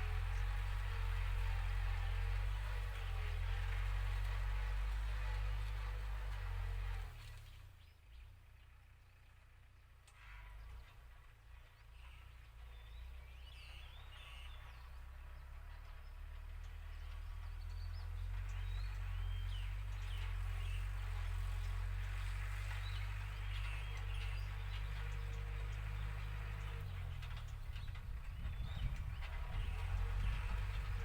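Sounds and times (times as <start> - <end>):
tractor diesel engine droning: 0.0 - 31.0
small birds chirping: 11.7 - 31.0.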